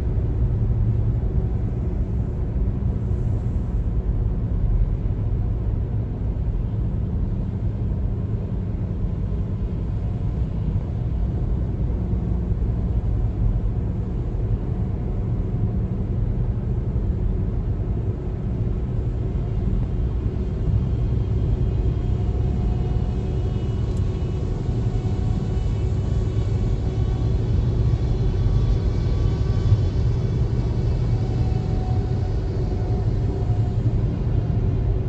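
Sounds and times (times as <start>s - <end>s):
road and tyre noise: 0.0s - 35.0s.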